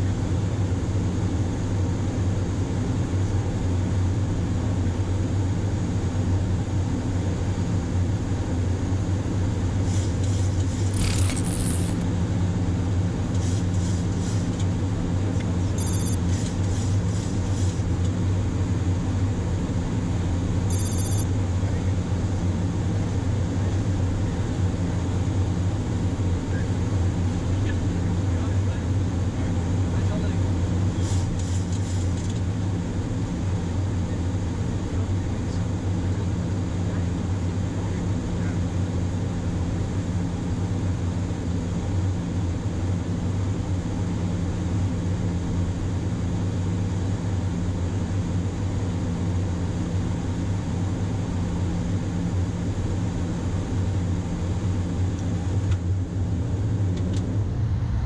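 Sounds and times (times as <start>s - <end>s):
cockpit engine and airflow rumble: 0.0s - 58.0s
high buzzing chirp: 15.8s - 16.2s, 20.7s - 21.2s.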